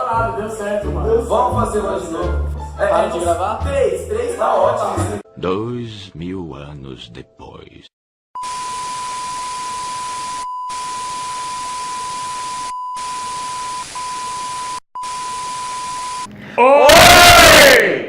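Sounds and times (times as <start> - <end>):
steady electronic beep: 8.4 - 16.3.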